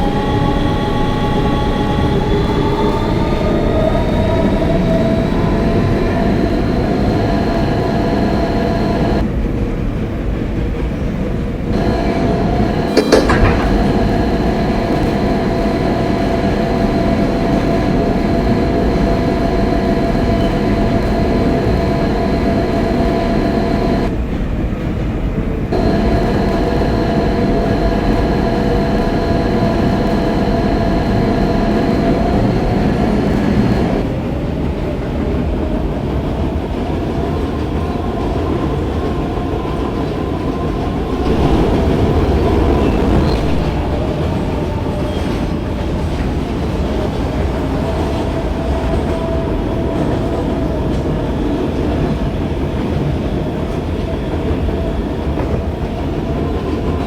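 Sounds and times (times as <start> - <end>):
electric propulsion whine: 0.0 - 9.3, 11.7 - 24.3, 25.7 - 34.3, 37.0 - 46.8
subway car rumble: 0.0 - 57.0
wheel clatter on track: 11.7 - 17.6.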